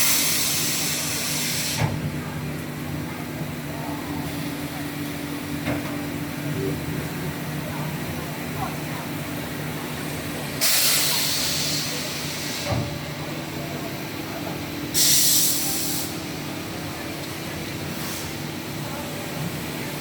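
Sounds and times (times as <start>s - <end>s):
compressed-air hiss: 15.0s - 16.1s.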